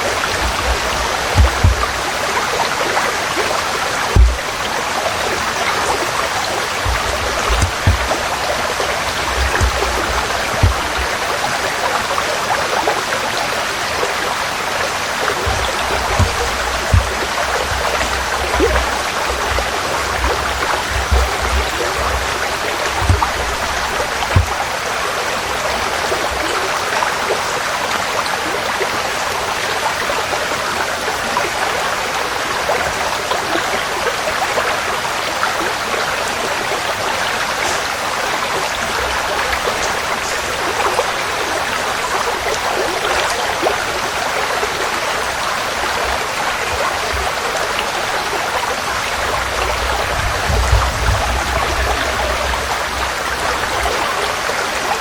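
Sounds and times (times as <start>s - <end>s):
stream flowing: 0.0s - 55.0s
low thumps: 0.1s - 2.2s, 4.1s - 4.7s, 6.8s - 11.3s, 15.4s - 24.6s.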